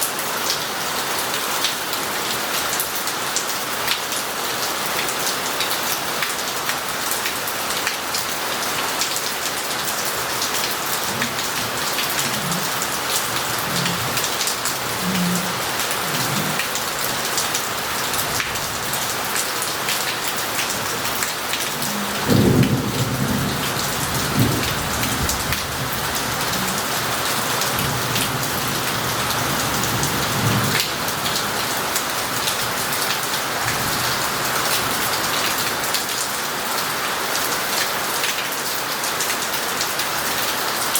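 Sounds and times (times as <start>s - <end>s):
heavy rain: 0.0s - 40.9s
rain running off roof tiles: 0.0s - 40.9s
thunder rumbling: 10.4s - 19.0s, 20.5s - 27.2s
loud thunderclap: 21.9s - 26.0s.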